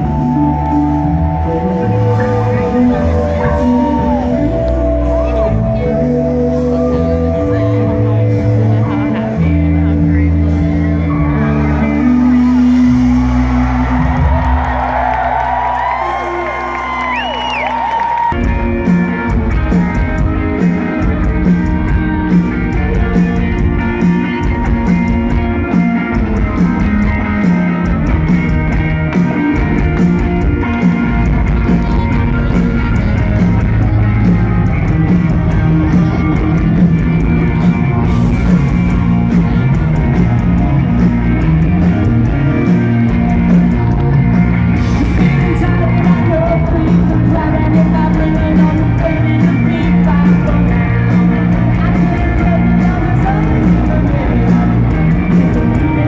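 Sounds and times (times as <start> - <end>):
person singing: 0.0 - 9.7, 10.6 - 14.7, 30.6 - 56.0
electric guitar: 0.0 - 56.0
rock band playing: 0.0 - 56.0.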